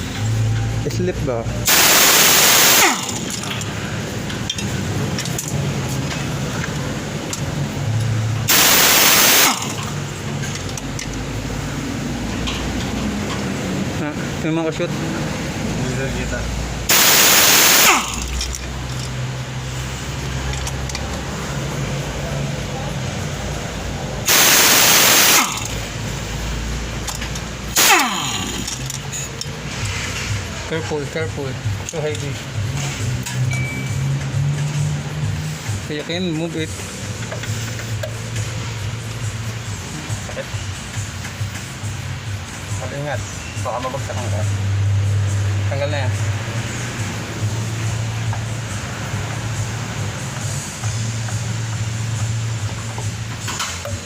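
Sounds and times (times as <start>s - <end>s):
pneumatic air tool hissing: 1.7s - 3.5s, 8.5s - 10.0s, 16.9s - 18.6s, 24.3s - 25.9s, 27.1s - 29.0s.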